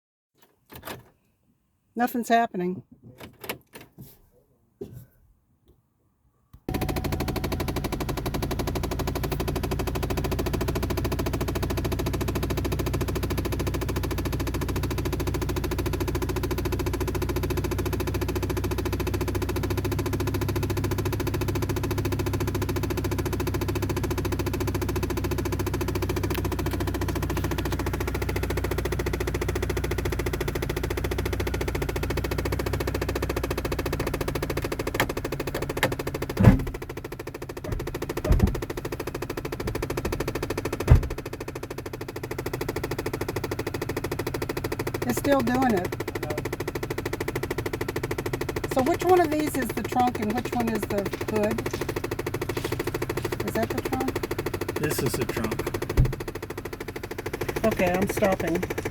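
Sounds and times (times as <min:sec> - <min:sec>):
sharp knocks: 0:37.6 - 0:38.7
car clicking chatter: 0:44.6 - 0:58.9.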